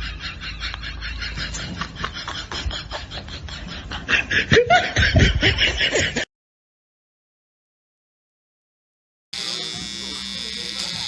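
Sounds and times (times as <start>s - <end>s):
people laughing: 0.0s - 6.3s.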